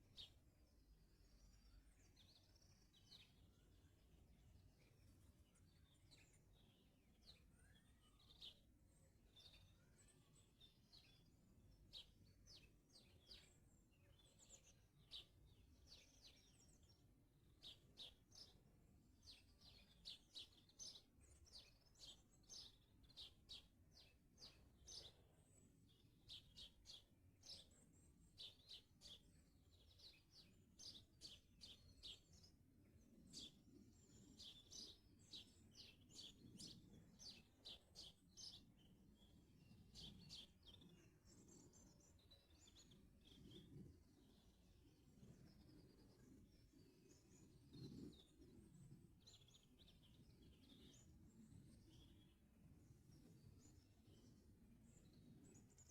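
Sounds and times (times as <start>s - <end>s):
songbirds chirping: 0.0s - 55.9s.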